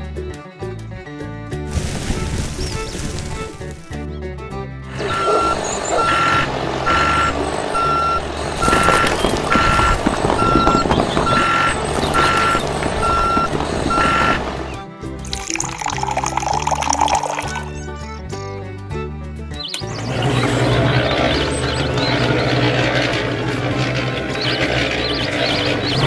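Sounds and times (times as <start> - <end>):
background music: 0.0 - 9.1, 12.5 - 26.0
reversing alarm beeping: 5.0 - 14.6.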